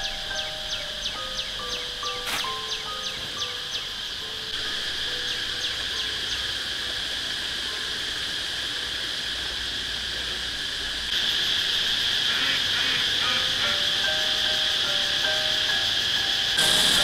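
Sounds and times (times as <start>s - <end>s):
faint sustained music notes: 0.0s - 17.0s
insects chirping: 0.0s - 17.0s.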